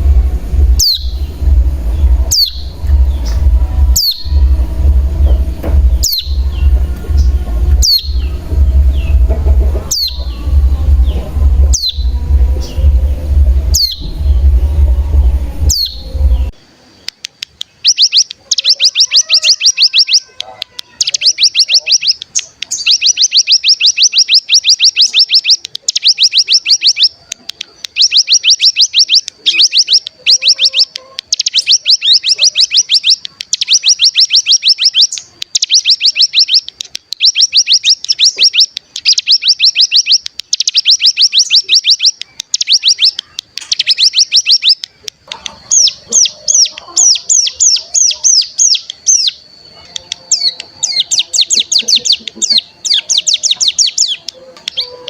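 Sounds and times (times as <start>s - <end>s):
bird buzzing trills: 0.0s - 16.5s
sharp bird chirps: 0.0s - 55.0s.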